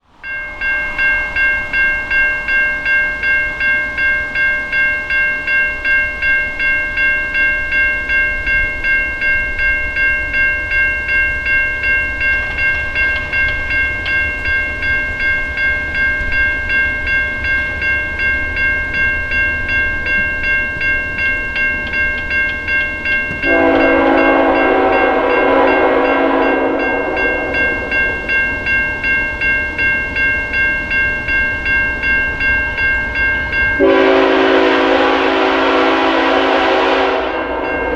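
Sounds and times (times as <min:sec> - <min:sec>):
crossing warning bell ringing: 0:00.0 - 0:37.9
freight train rumble: 0:00.0 - 0:37.9
locomotive air horn blast: 0:23.4 - 0:27.5, 0:33.8 - 0:37.6.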